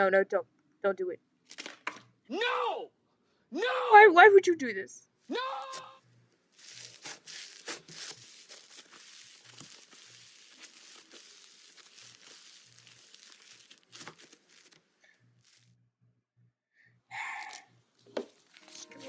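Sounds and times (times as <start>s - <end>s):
slime crackling and popping: 6.5s - 15.7s, 17.4s - 18.7s.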